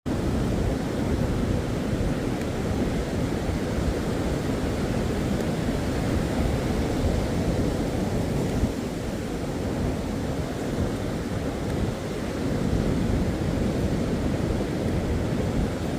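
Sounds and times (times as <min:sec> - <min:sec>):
ocean surf rushing: 0:00.1 - 0:15.9.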